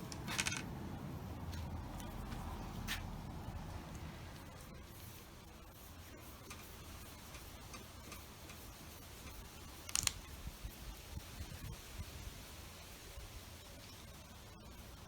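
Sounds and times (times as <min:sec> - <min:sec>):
sharp clicks: 0:09.9 - 0:10.2.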